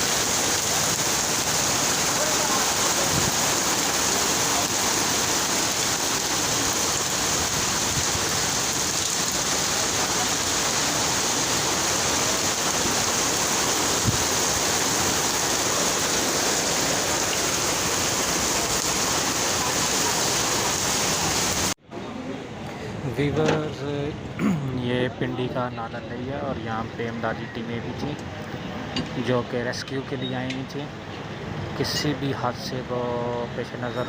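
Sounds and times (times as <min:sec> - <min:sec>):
floodwater rushing through channel: 0:00.0 - 0:21.8.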